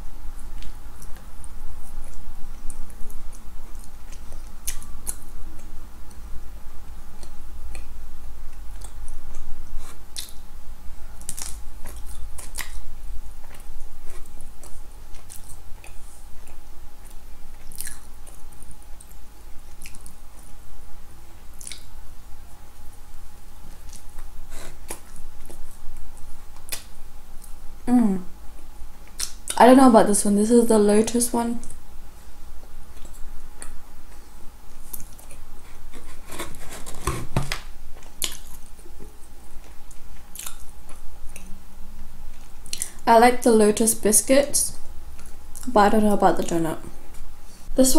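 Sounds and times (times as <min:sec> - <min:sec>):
faint steady hum: 0:00.0 - 0:47.9
person chewing with mouth clicks: 0:00.4 - 0:06.2, 0:07.1 - 0:10.4, 0:11.2 - 0:20.5, 0:21.6 - 0:21.9, 0:23.7 - 0:27.6, 0:28.6 - 0:29.6, 0:32.9 - 0:36.2, 0:38.0 - 0:43.0.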